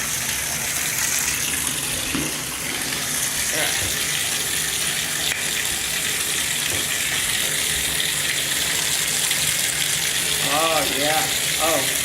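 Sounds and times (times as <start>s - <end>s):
water running from bathtub tap: 0.0s - 12.0s.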